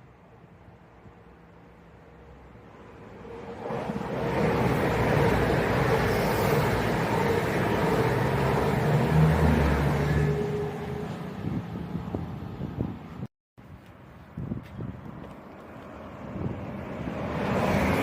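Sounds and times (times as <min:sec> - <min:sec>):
diesel train passing: 0:00.0 - 0:13.3, 0:15.0 - 0:18.0.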